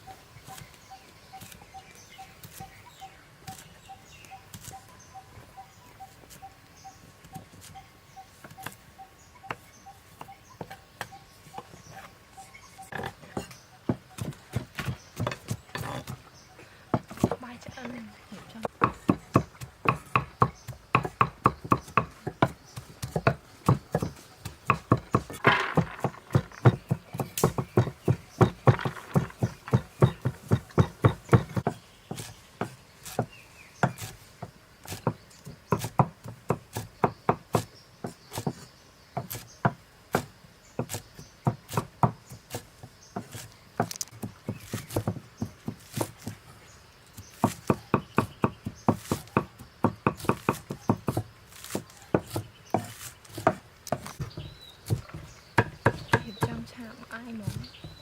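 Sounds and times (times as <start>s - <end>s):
knife chopping on cutting board: 18.7s - 46.4s.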